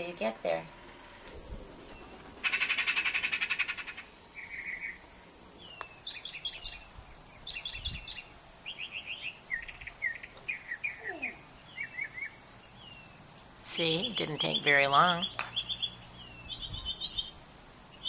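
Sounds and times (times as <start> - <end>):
rapid buzzy bird trill: 1.8 - 5.0.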